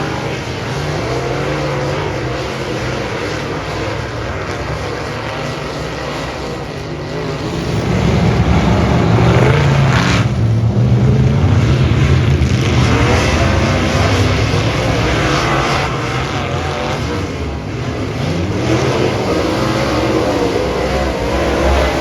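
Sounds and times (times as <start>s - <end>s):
race car engine running hard: 0.0s - 22.0s.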